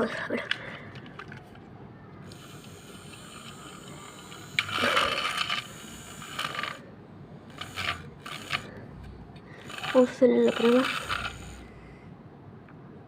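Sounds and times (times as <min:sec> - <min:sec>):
toy train click: 0:00.3 - 0:01.6, 0:02.2 - 0:06.8, 0:07.5 - 0:08.8, 0:09.6 - 0:11.7
toy train mechanical rattling: 0:02.2 - 0:08.8, 0:09.4 - 0:11.8.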